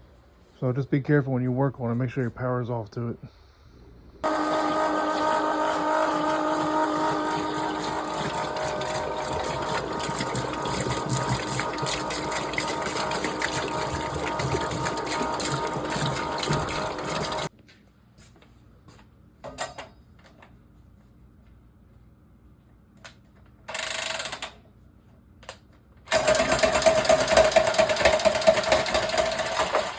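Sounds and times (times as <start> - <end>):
electric pump rattling: 4.2 - 17.5, 26.1 - 29.9
water rushing: 4.3 - 17.5.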